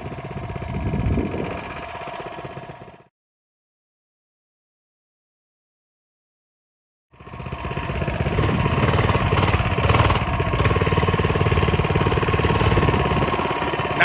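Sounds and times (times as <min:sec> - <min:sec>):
small engine putter: 0:00.0 - 0:03.1, 0:07.2 - 0:14.0.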